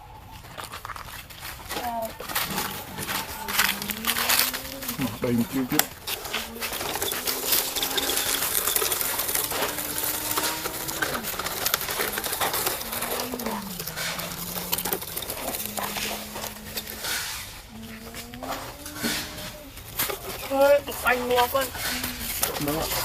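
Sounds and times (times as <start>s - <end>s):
clicking and rattling grit: 0.3s - 23.0s
small motor humming: 3.1s - 19.6s.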